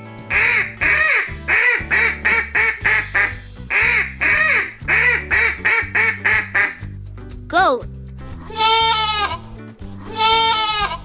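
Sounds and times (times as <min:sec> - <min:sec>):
background music with bass line: 0:00.0 - 0:11.0
duck quacking: 0:00.3 - 0:06.8.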